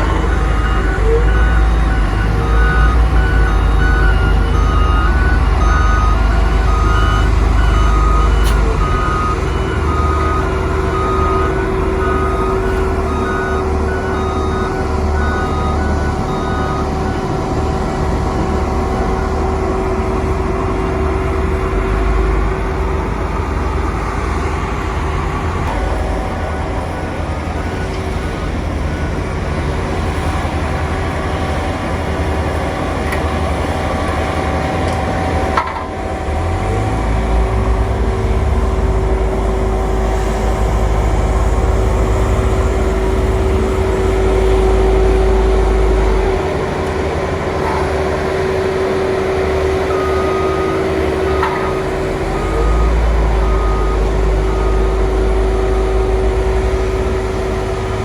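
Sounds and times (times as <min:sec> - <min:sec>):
constant hum: 0:00.0 - 0:58.0
diesel engine rumble: 0:00.0 - 0:58.0.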